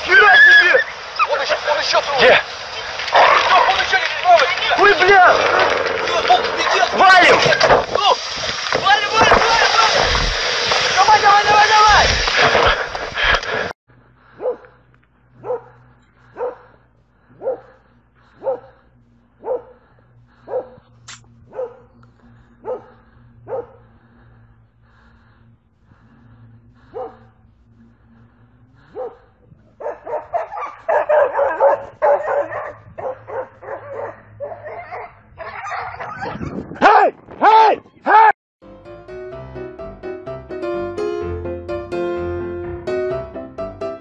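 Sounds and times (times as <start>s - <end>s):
dog barking: 14.3s - 14.8s, 15.4s - 18.8s, 19.4s - 20.9s, 21.5s - 21.9s, 22.6s - 23.9s, 26.9s - 27.3s, 28.8s - 36.5s
dog yelping: 29.8s - 36.5s.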